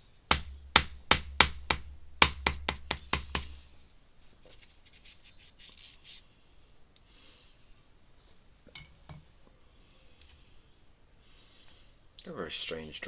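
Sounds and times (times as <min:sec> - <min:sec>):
sharp taps on a desk: 0:00.3 - 0:03.6.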